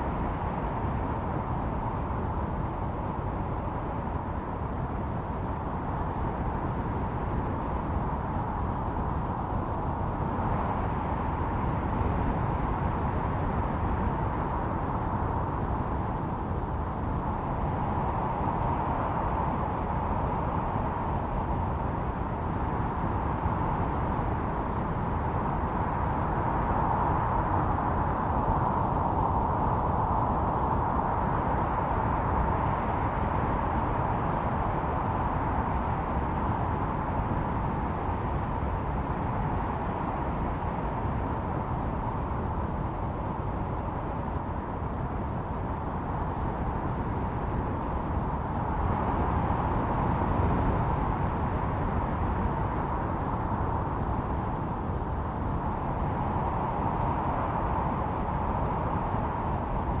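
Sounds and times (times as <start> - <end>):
howling storm wind: 0.0 - 60.0.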